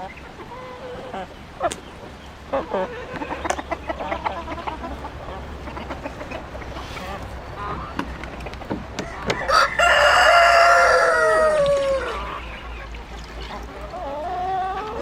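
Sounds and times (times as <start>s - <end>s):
chickens clucking: 0.0s - 15.0s
rooster crowing: 9.0s - 12.4s.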